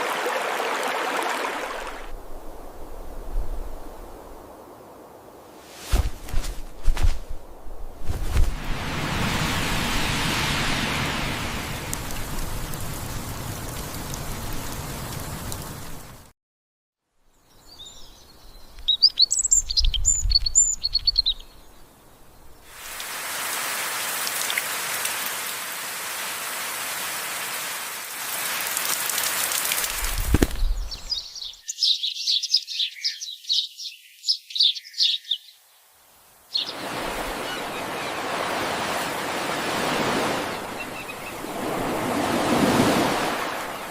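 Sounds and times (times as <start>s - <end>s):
steady rushing noise: 5.6s - 11.9s
rain hiss: 8.0s - 16.3s, 21.9s - 31.5s, 35.8s - 43.9s.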